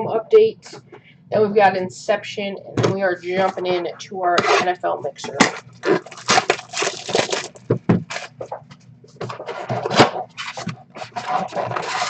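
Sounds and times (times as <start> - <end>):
cardboard and wrapper rustling: 5.4 - 8.6, 9.2 - 12.0.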